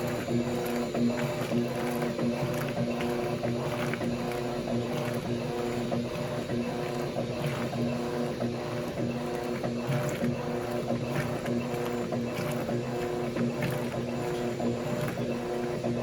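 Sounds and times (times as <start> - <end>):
washing machine motor hum: 0.0 - 16.0
water sloshing in washer: 0.0 - 16.0.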